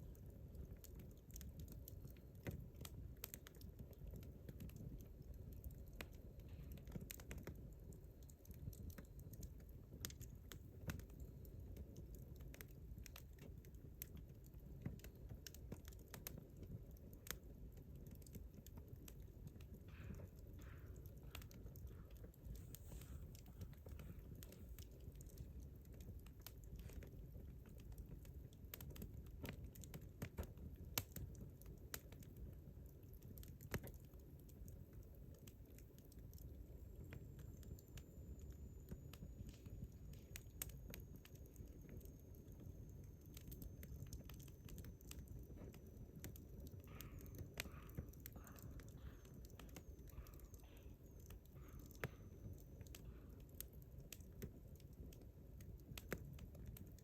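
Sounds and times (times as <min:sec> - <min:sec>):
campfire crackling: 0:00.0 - 0:57.0
low steady rumble: 0:19.2 - 0:26.2.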